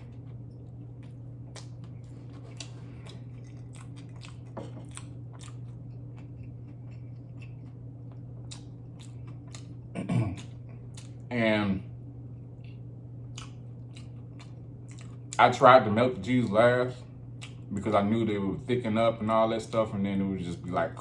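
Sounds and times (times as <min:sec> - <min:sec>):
person chewing food: 0:00.0 - 0:11.3, 0:12.6 - 0:15.4, 0:17.0 - 0:17.7
low hum: 0:00.0 - 0:21.0.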